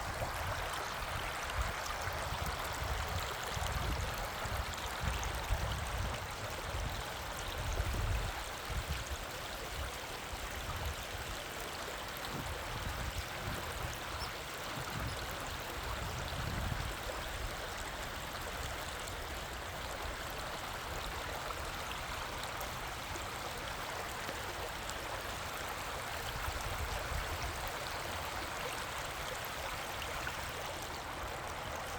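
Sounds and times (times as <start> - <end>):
river water rushing: 16.9 - 31.9.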